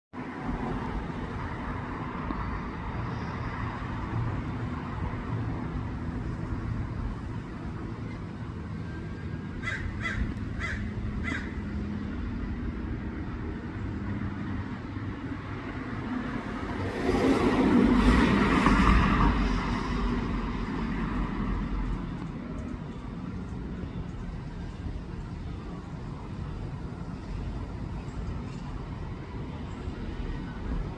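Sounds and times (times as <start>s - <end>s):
traffic rumble: 0.2s - 30.9s
vehicle passing: 9.6s - 23.6s.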